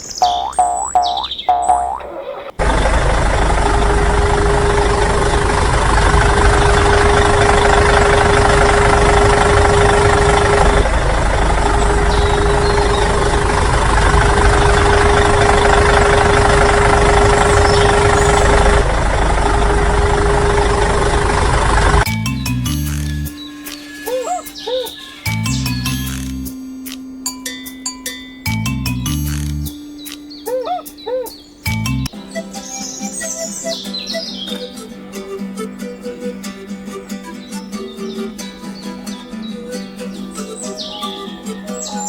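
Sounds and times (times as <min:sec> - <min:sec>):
constant hum: 0:00.0 - 0:32.1
loud engine noise: 0:02.6 - 0:24.0.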